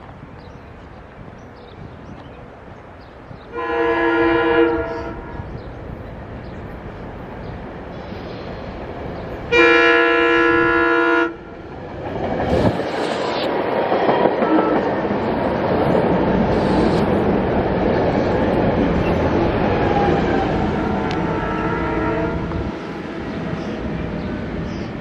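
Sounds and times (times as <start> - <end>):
train rumbling past: 0.0 - 25.0
train horn blast: 3.5 - 5.5, 9.5 - 11.5, 14.4 - 14.9, 20.0 - 22.8.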